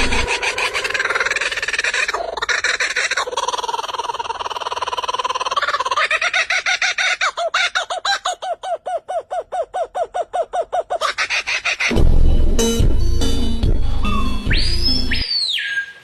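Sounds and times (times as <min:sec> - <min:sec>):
bird calling: 0:00.0 - 0:11.9
low rumble with steady tones: 0:11.9 - 0:15.2.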